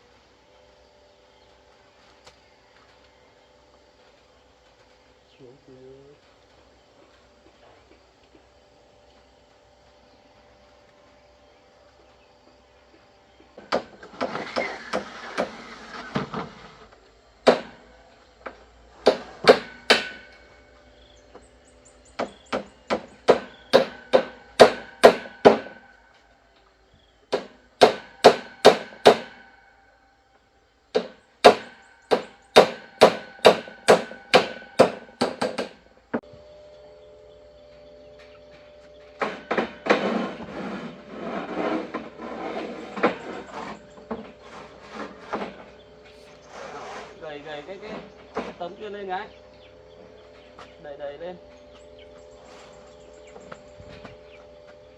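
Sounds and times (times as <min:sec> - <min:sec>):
scraping and light knocks: 0:13.4 - 0:17.2, 0:38.2 - 0:48.9, 0:51.5 - 0:54.8
hammer striking nails into wood: 0:17.4 - 0:17.9, 0:19.0 - 0:20.4, 0:22.2 - 0:25.9, 0:27.3 - 0:29.5, 0:30.9 - 0:35.8.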